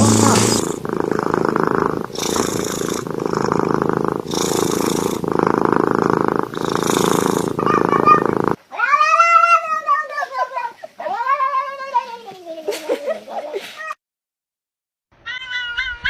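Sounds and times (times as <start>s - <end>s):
cat purring loudly: 0.0s - 8.6s
cat meowing: 7.6s - 10.5s.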